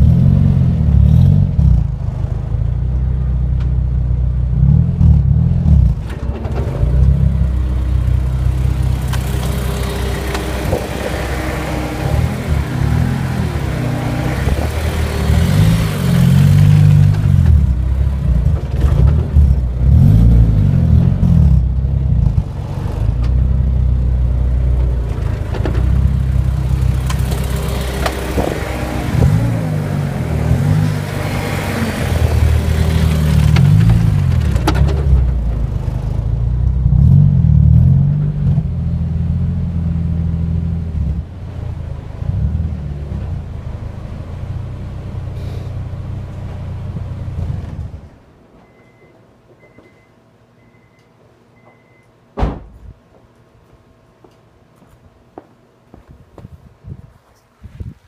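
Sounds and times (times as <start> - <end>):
car engine revving: 0.0 - 48.1
rear differential clunking: 2.6 - 37.0.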